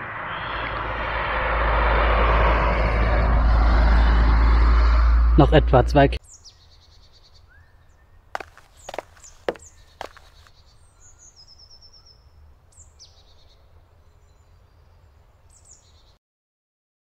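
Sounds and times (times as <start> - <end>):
forest birds calling: 6.2 - 16.2.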